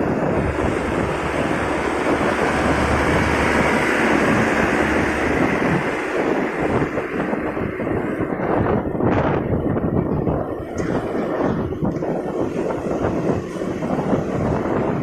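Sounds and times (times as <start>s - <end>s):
motorcycle engine and road noise: 0.0s - 15.0s
wind rush on microphone: 0.0s - 15.0s.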